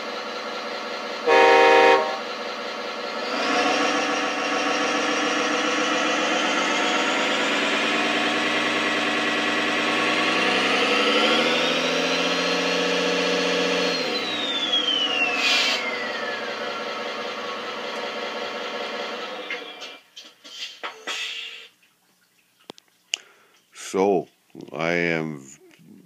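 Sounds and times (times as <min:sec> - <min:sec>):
simulated diesel truck engine: 0:00.0 - 0:21.7
turbo whine: 0:01.2 - 0:02.4, 0:03.1 - 0:18.2.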